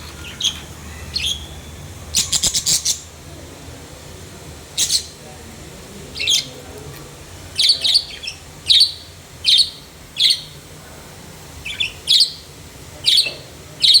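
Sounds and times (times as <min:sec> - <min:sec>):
budgerigar chirping: 0:00.2 - 0:03.0, 0:07.6 - 0:10.5, 0:11.7 - 0:12.4.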